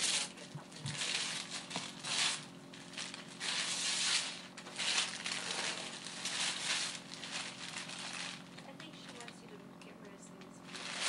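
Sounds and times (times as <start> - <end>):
gift wrapping paper tearing: 0.0 - 9.4, 10.6 - 11.0.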